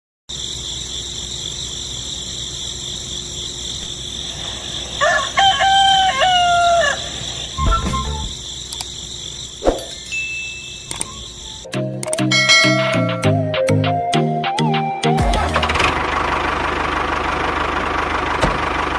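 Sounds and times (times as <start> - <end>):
rooster crowing: 4.2 - 8.2.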